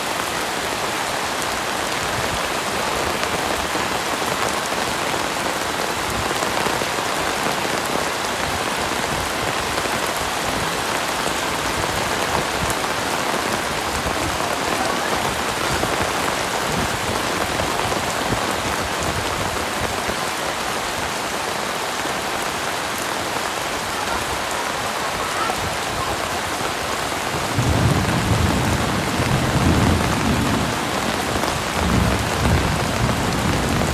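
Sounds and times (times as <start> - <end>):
heavy rain falling: 0.0 - 33.9
thunder rumbling: 8.7 - 19.8, 27.3 - 33.9.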